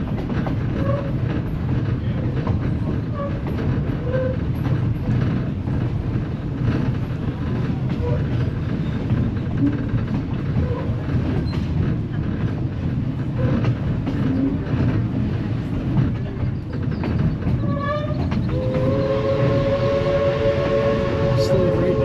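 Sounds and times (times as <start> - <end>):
train car rumbling and clacking: 0.0 - 22.0
train whistle blast: 18.5 - 22.0.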